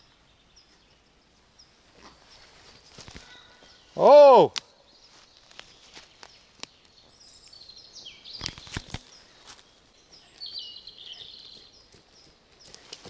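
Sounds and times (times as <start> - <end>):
songbirds chirping: 0.0 - 13.0
sharp snaps: 4.4 - 4.7, 8.4 - 9.1.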